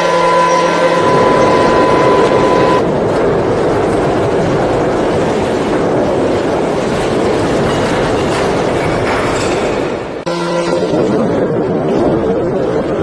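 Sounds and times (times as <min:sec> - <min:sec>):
steady high tone: 0:00.0 - 0:02.8.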